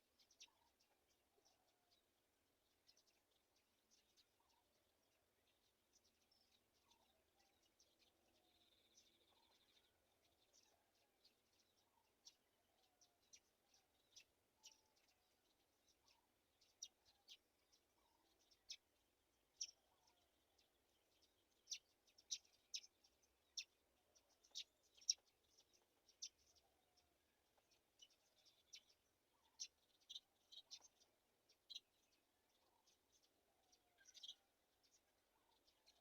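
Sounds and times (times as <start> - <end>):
faint high bird chirps: 0.0 - 36.0
faint lower bird calls: 19.6 - 36.0.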